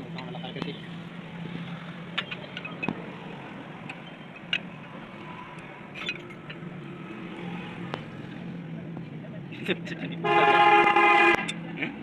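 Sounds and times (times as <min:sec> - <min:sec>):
vehicle engines and traffic hum: 0:00.0 - 0:12.0.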